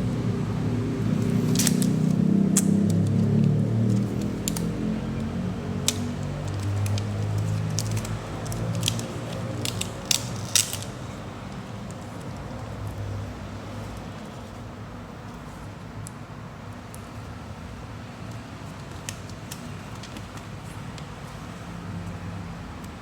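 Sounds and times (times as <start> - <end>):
low steady hum: 0.0 - 9.2
packaging clicks and crackles: 1.0 - 13.0, 18.3 - 21.1.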